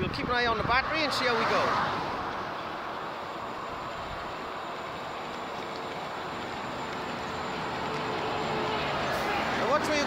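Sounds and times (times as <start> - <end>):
road traffic passing: 0.0 - 10.0.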